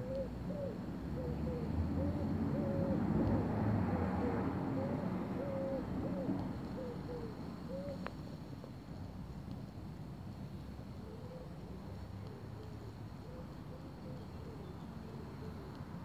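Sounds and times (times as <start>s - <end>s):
bird hooting: 0.0s - 3.0s, 4.2s - 8.0s.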